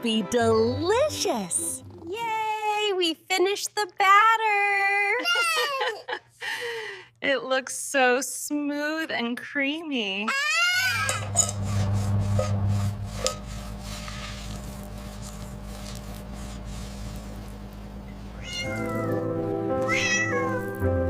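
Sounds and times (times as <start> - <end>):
background music: 0.0 - 2.3, 18.7 - 21.0
low steady hum: 10.9 - 20.8
kitten meowing: 18.4 - 20.7.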